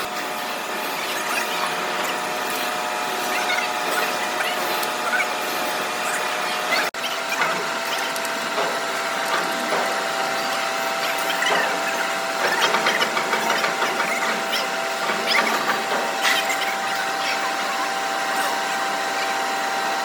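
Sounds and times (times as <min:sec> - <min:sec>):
machine humming: 0:00.0 - 0:20.0
clicking and scraping: 0:07.3 - 0:17.5.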